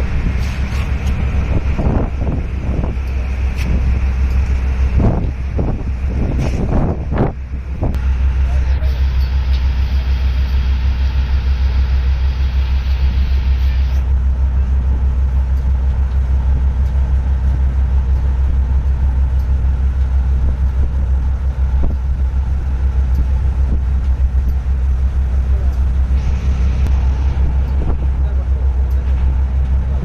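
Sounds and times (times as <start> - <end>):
loud low fluttering rumble: 0.0 - 30.0.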